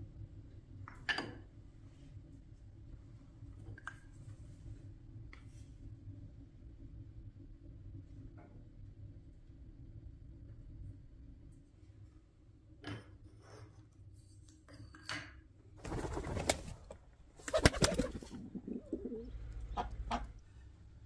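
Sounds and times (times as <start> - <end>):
bird calling: 17.5 - 20.3.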